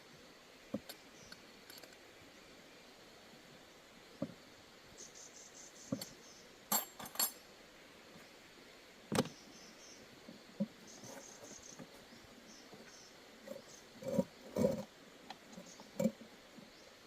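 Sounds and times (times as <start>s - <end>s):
faint high chirping: 4.9s - 7.4s, 10.8s - 14.8s
metallic clinks and knocks: 6.7s - 7.4s.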